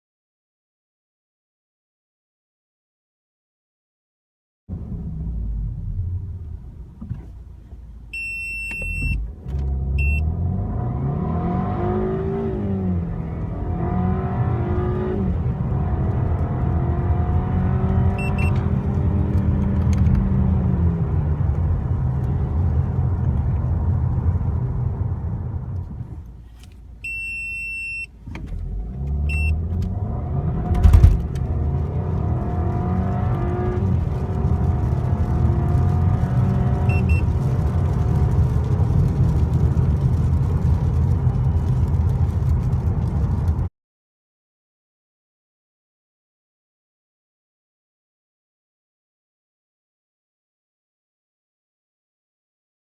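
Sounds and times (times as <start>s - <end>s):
short electronic beeps: 8.2s - 9.2s, 18.2s - 18.6s, 27.0s - 28.1s, 29.3s - 29.6s
car engine accelerating hard: 8.8s - 27.0s, 28.2s - 43.7s.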